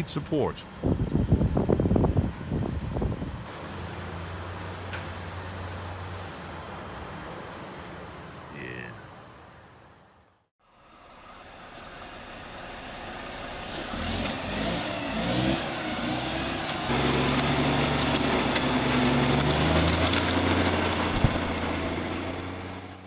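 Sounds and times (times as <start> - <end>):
truck engine revving: 11.8 - 23.0.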